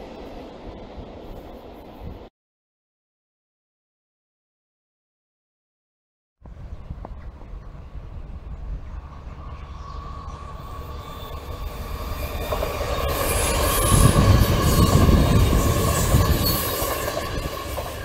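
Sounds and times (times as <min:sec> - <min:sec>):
electric train passing: 0:00.0 - 0:02.3, 0:06.4 - 0:18.0
rail noise rumble: 0:00.0 - 0:02.3, 0:06.4 - 0:18.0
high-pitched whine: 0:06.5 - 0:18.0.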